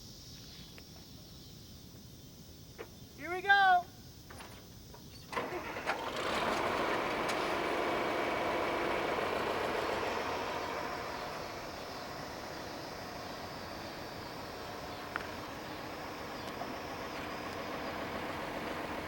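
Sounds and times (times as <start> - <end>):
tractor motor running: 4.3 - 19.0.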